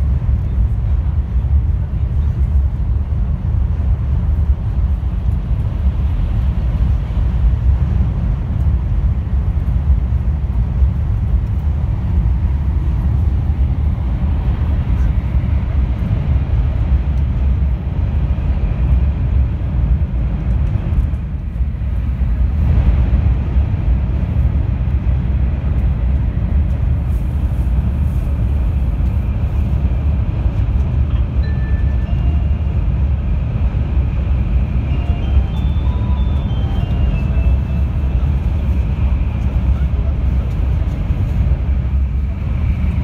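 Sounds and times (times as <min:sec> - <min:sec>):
train rumble in tunnel: 0:00.0 - 0:43.0
high electronic chime notes: 0:34.8 - 0:38.0.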